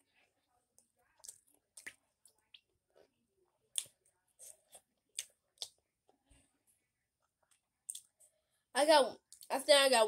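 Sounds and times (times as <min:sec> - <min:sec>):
person chewing food: 0:00.8 - 0:03.1
wet mouth clicks and lip smacks: 0:01.2 - 0:02.0, 0:07.9 - 0:08.1.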